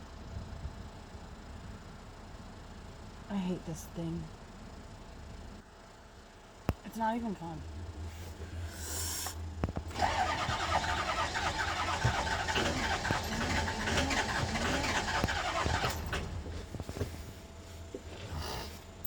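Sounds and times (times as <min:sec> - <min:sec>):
diesel engine cranking: 0:08.4 - 0:17.4.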